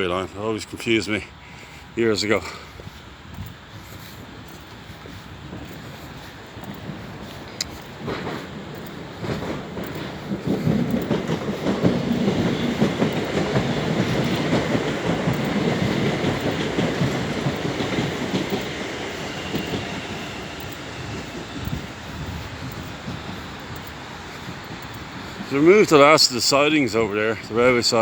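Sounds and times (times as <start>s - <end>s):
train passing: 0.0s - 28.0s.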